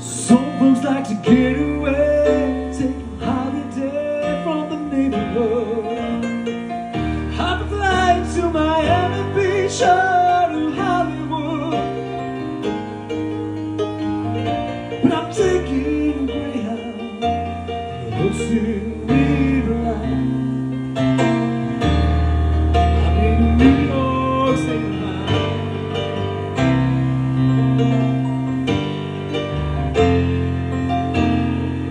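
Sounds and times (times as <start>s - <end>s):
man singing: 0.0s - 12.4s, 15.0s - 20.8s, 22.7s - 26.2s
piano ballad: 0.0s - 31.9s.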